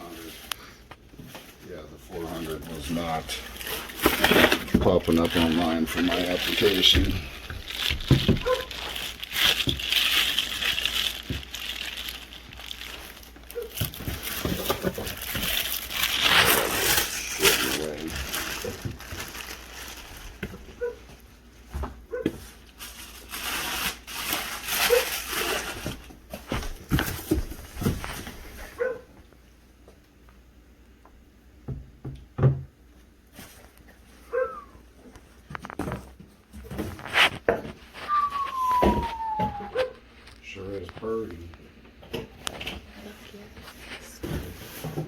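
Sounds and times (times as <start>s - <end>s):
packaging crinkling: 2.2s - 21.2s, 22.3s - 28.8s, 36.8s - 40.4s.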